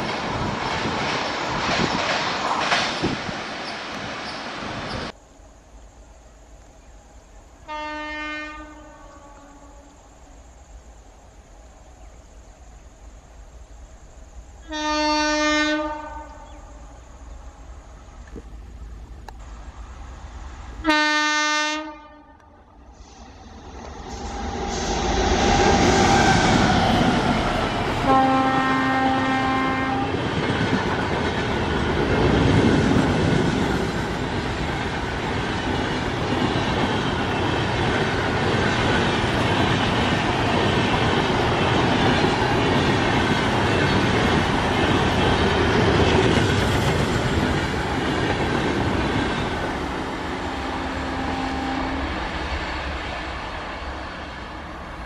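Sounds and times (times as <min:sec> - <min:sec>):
wheels clattering on rails: 0:00.0 - 0:05.2, 0:30.1 - 0:50.2
train passing at speed: 0:00.0 - 0:55.0
train horn blast: 0:07.7 - 0:10.0, 0:14.6 - 0:16.7, 0:20.8 - 0:22.6, 0:28.0 - 0:30.2, 0:50.4 - 0:52.2.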